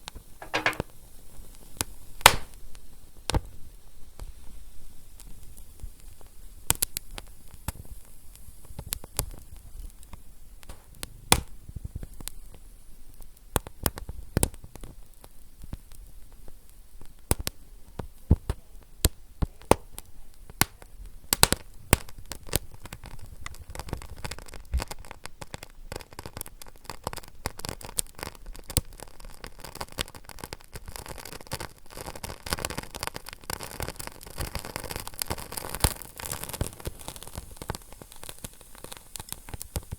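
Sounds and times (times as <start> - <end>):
fire crackling and popping: 0.4 - 39.9
low fire rumble: 31.6 - 39.9.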